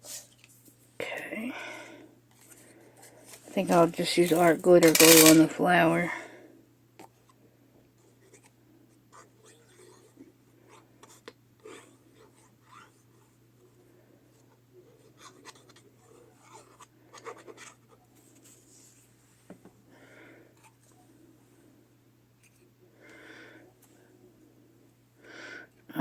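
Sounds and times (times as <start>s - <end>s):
low electrical hum: 0.0s - 26.0s
paper scratching and rustling: 14.9s - 19.1s.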